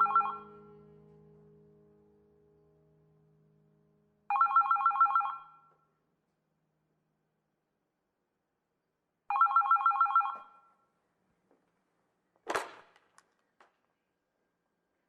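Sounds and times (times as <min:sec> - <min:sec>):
pulsing ringing trill: 0:00.0 - 0:00.9.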